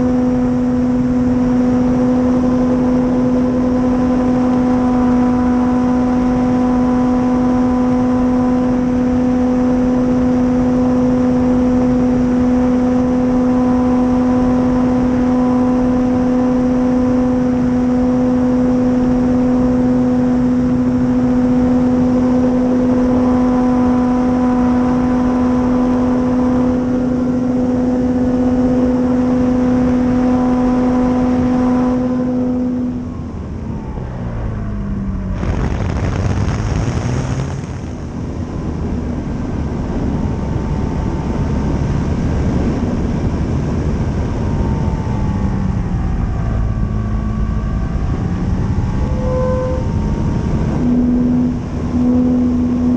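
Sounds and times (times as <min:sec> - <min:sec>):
electric motor and propeller whine: 0:00.0 - 0:52.9
wind rush: 0:33.7 - 0:39.6.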